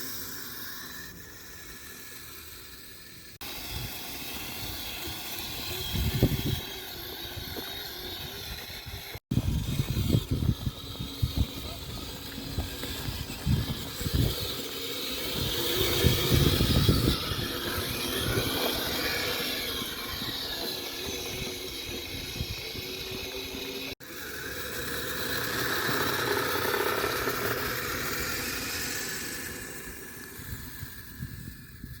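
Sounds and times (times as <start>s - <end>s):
electric motor whine: 0.0s - 32.0s
low rumbling: 3.5s - 23.9s.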